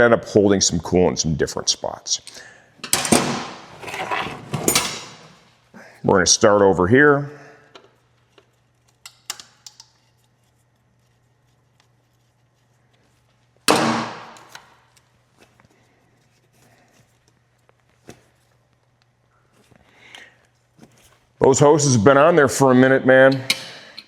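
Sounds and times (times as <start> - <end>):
tools clattering: 2.3 - 5.4.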